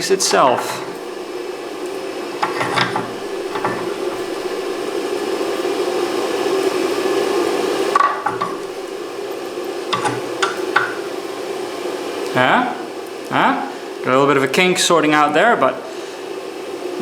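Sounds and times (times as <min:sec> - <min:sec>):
steady background hum: 0:00.0 - 0:17.0
metal scraping and clinking: 0:00.2 - 0:01.2, 0:02.4 - 0:04.9, 0:08.0 - 0:09.0, 0:09.9 - 0:11.1.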